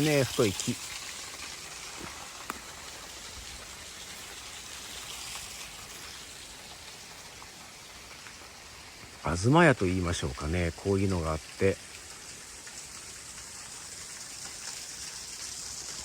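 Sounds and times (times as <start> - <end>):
small waterfall and stream rushing: 0.0 - 16.0.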